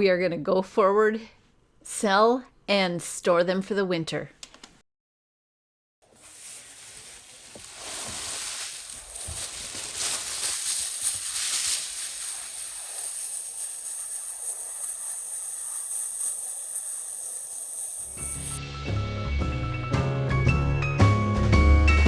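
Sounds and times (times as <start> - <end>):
steady hiss: 6.1 - 18.6.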